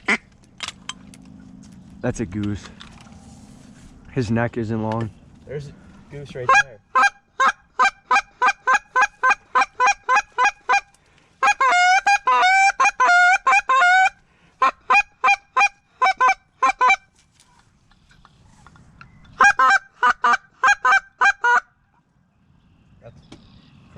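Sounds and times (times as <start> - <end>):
goose call honks: 0.0 - 0.3, 6.3 - 17.1, 19.4 - 21.8.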